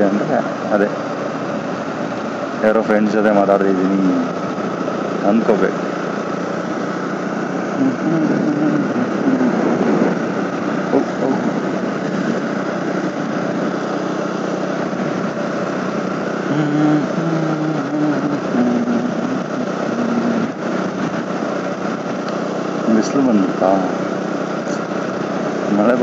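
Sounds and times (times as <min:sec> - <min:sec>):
motorcycle engine running: 0:00.0 - 0:26.0
wind rush: 0:05.8 - 0:22.9.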